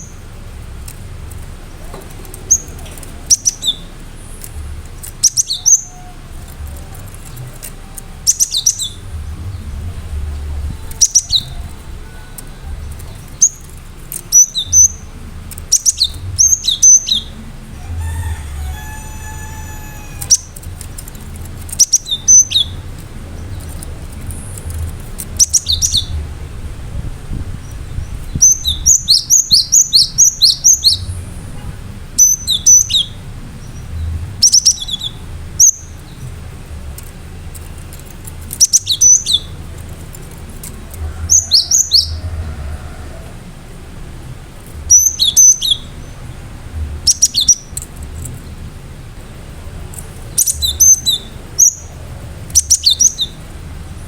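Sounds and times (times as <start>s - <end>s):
steady low hum: 0.0s - 54.0s
low drawn-out bird call: 1.7s - 26.4s.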